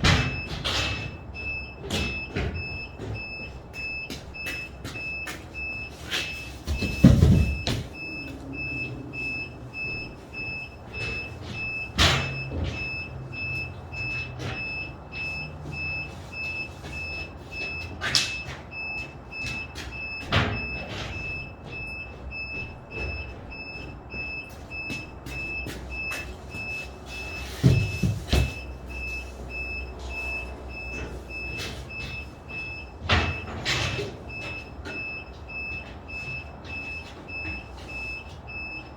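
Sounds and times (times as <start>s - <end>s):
sharp knocks and thumps: 0.0s - 8.4s, 27.4s - 28.7s.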